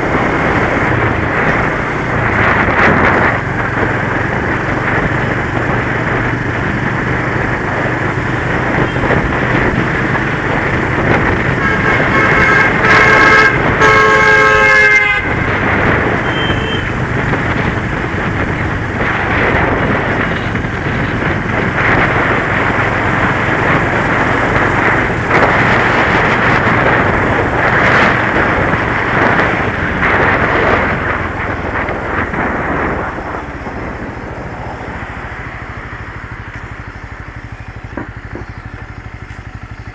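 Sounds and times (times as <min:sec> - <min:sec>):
motorcycle engine running: 0:00.0 - 0:39.9
wind rush on microphone: 0:00.0 - 0:39.9
vehicle horn honking: 0:08.8 - 0:09.2, 0:11.6 - 0:17.0.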